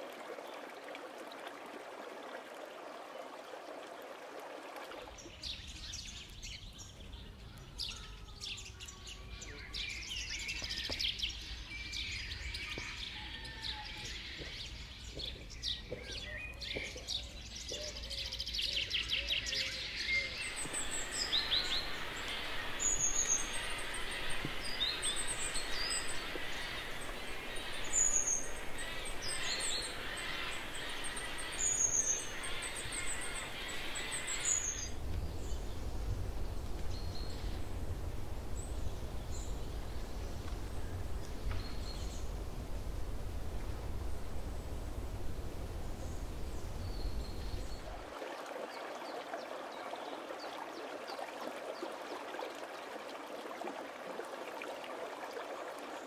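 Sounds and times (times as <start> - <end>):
birds singing and calling: 5.2 - 37.6
steady dense hiss: 19.7 - 48.1.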